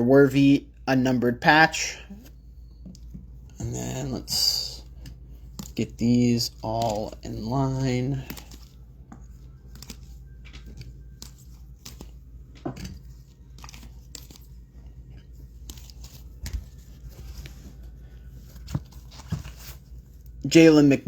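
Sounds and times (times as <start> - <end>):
cards rustling and crinkling: 2.2 - 21.0.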